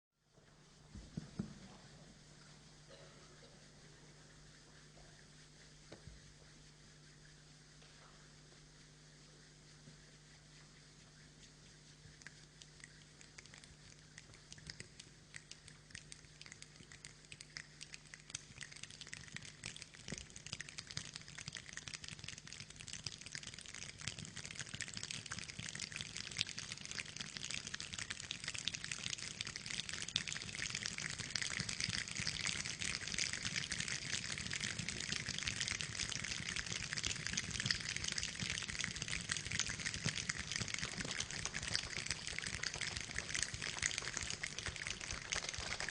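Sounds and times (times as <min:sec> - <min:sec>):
rain falling: 0:40.8 - 0:45.9.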